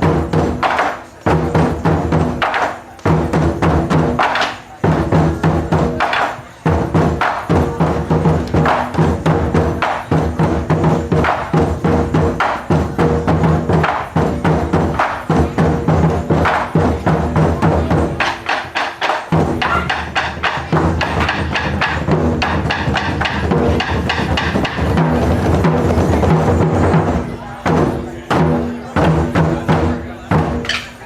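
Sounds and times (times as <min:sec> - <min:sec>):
taiko drums playing: 0:00.0 - 0:31.0.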